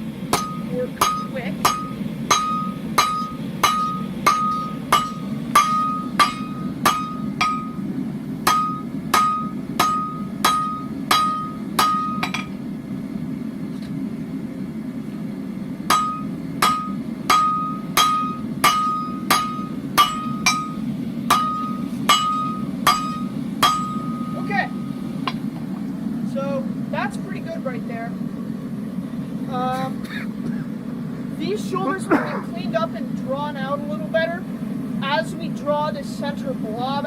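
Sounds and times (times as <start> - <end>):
hammer striking steel on anvil: 0.3 - 12.6, 15.9 - 25.4.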